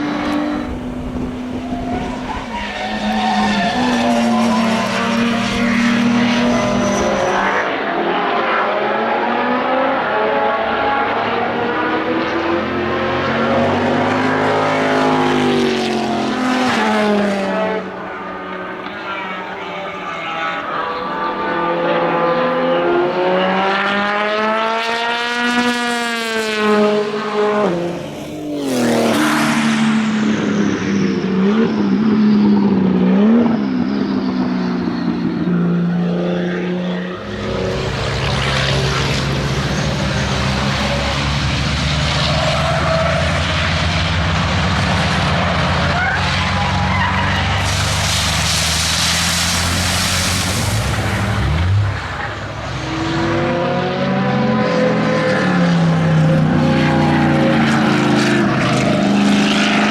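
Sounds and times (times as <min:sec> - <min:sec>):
racing car revving past: 0:00.0 - 0:59.9
deep rough engine rumble: 0:37.2 - 0:52.7.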